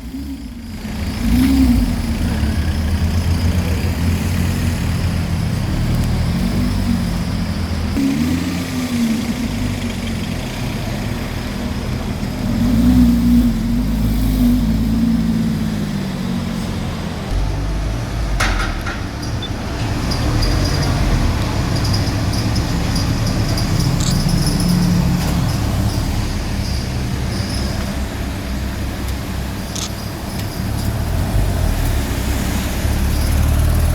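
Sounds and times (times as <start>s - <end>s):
sports car engine revving: 0.0s - 33.9s
sharp click: 24.0s - 24.2s, 29.7s - 30.0s.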